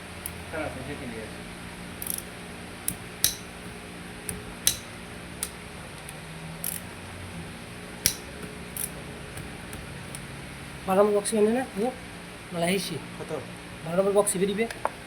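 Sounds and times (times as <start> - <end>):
low steady hum: 0.0 - 15.0
tools clicking and clinking: 2.0 - 6.9, 8.0 - 10.3.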